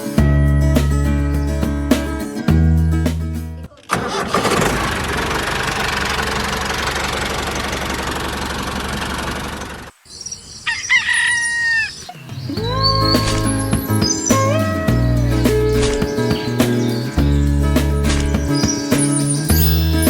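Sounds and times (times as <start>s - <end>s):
small engine running: 3.9s - 9.9s
rooster crowing: 10.6s - 12.1s.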